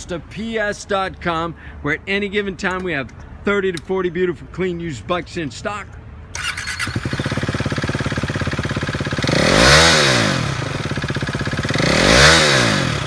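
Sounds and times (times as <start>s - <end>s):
motorcycle engine idling and revving: 6.3s - 13.0s.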